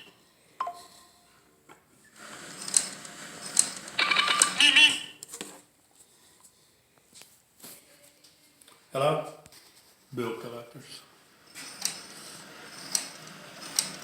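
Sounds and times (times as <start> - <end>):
phone ringtone melody: 0.6 - 1.0, 4.0 - 5.1.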